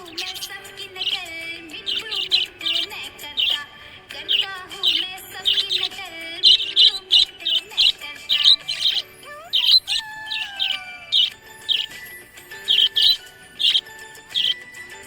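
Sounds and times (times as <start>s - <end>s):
budgerigars chirping: 0.0s - 15.0s.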